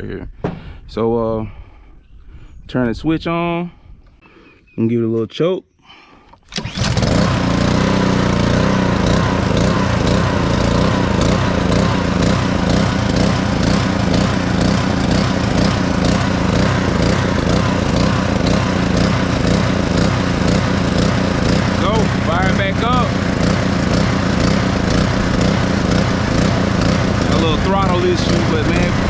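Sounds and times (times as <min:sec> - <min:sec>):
pressure washer engine running: 0:06.5 - 0:29.0.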